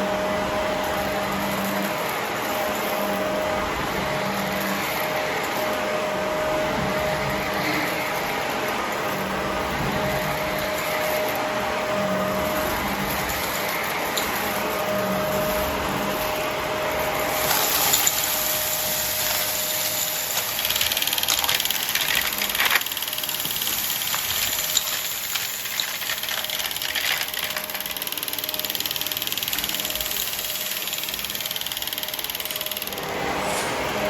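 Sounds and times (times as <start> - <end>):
vacuum cleaner running: 0.0 - 34.0
debris clicks: 20.0 - 28.0.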